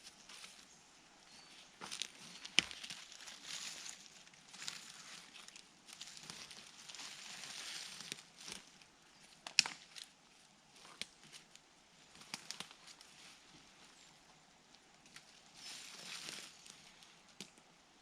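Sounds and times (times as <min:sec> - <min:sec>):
twigs and leaves rustling: 0:00.0 - 0:17.6
twigs snapping: 0:01.8 - 0:10.2, 0:10.8 - 0:13.1.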